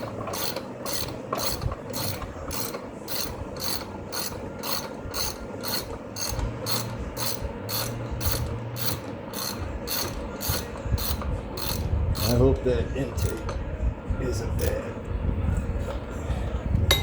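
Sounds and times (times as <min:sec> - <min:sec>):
socket ratchet clicking: 0:00.0 - 0:12.4.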